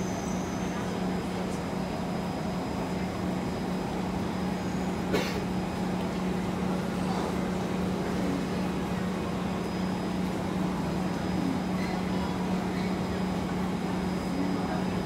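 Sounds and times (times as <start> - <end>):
steady train hum: 0.0 - 15.0.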